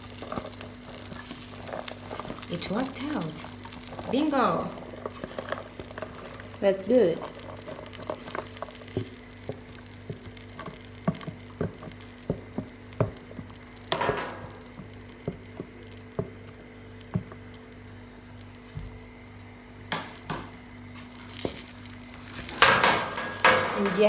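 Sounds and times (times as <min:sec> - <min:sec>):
utensil scraping pot: 0:00.0 - 0:16.3.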